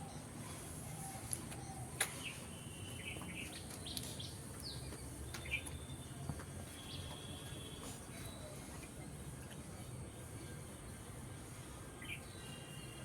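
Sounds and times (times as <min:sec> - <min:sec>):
birds chirping: 0:00.0 - 0:06.2.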